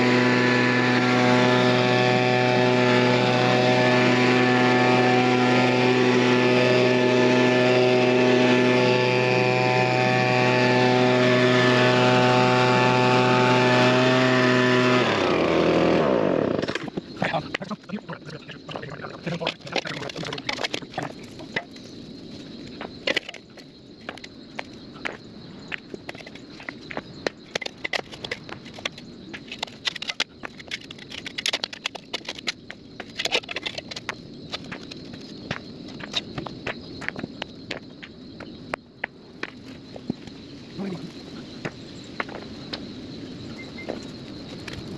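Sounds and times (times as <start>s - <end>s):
engine running and winding down: 0.0s - 16.8s
stones clacking together: 19.2s - 21.8s, 22.8s - 38.8s.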